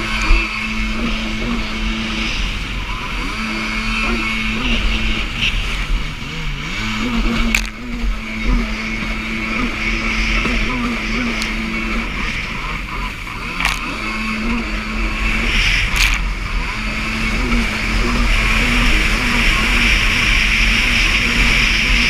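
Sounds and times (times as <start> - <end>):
jet ski engine running: 0.0 - 22.0
rush of wind and water: 0.0 - 22.0.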